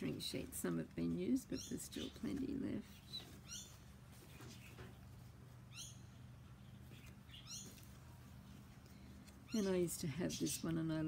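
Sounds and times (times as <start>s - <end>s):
faint steady hum: 0.0s - 11.0s
small bird chirping: 1.4s - 5.0s, 5.7s - 8.6s.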